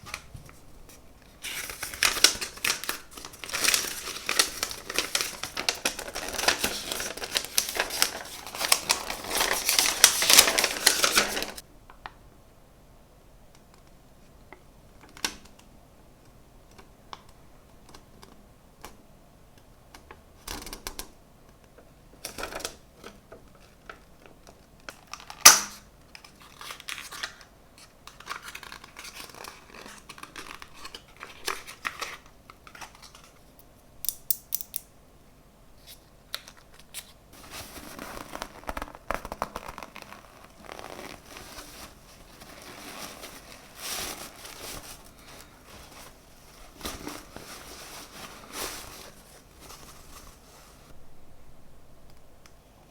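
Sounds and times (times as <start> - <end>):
packaging rustling and crinkling: 0.0 - 11.6, 22.2 - 33.4, 36.4 - 51.0.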